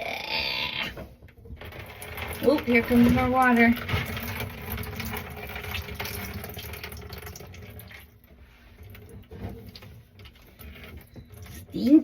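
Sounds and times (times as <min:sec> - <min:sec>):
water splashing into a bucket: 0:01.5 - 0:11.9.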